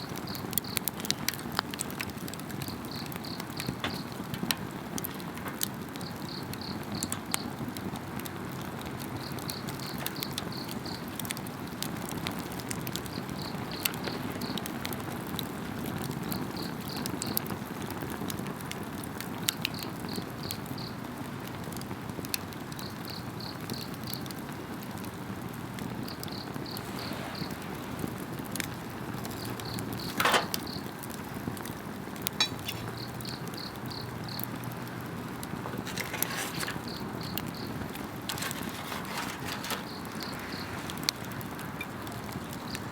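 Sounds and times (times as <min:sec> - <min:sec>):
wood fire crackling and popping: 0:00.0 - 0:42.9
insects chirping: 0:02.6 - 0:04.2, 0:06.0 - 0:07.6, 0:09.1 - 0:11.1, 0:25.9 - 0:30.9, 0:32.4 - 0:34.7, 0:35.6 - 0:41.0.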